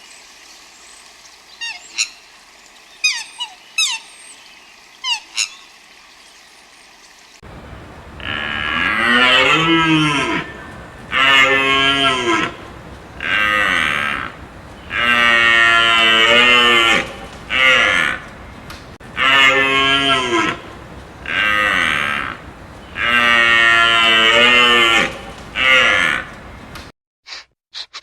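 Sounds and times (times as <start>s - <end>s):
large animal bellowing: 7.6s - 18.5s, 19.1s - 26.4s.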